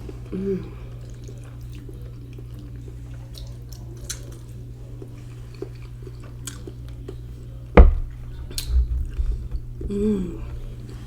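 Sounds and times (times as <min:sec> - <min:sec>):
close chewing: 0:00.0 - 0:11.0
low electrical hum: 0:00.0 - 0:11.0
sharp loud knock: 0:07.8 - 0:08.2.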